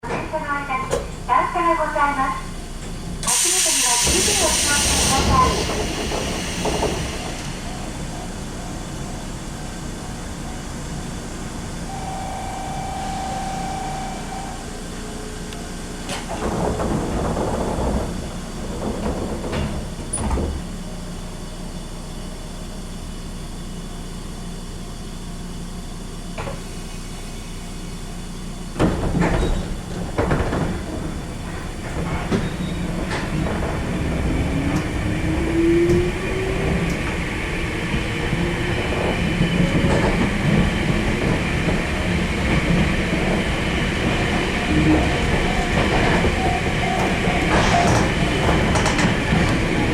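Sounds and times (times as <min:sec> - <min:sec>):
train doors thudding: 0:02.8 - 0:08.5, 0:16.0 - 0:20.8, 0:28.7 - 0:49.9
train motor whine: 0:02.8 - 0:16.3
door buzzer tone: 0:11.9 - 0:14.7.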